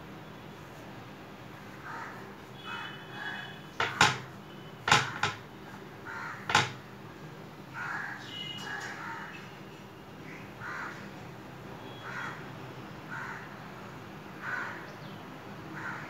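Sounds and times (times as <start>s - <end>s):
sharp clicks or knocks: 3.8s - 4.3s, 4.9s - 5.5s, 6.5s - 6.8s.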